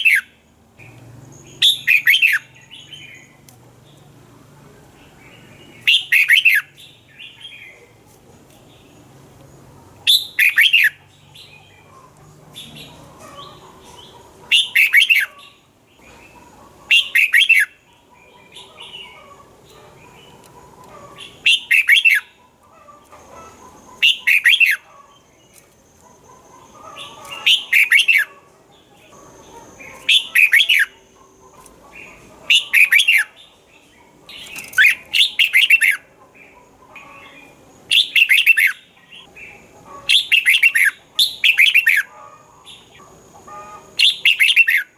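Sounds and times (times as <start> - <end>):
bird whistling song: 0.0 - 3.4, 5.8 - 7.7, 10.1 - 11.0, 14.5 - 15.6, 16.9 - 17.8, 21.3 - 22.4, 23.9 - 24.9, 26.4 - 28.3, 29.8 - 31.0, 32.5 - 33.3, 34.5 - 36.0, 37.9 - 38.9, 40.1 - 42.1, 43.6 - 44.9
faint bird chirping: 0.0 - 44.9.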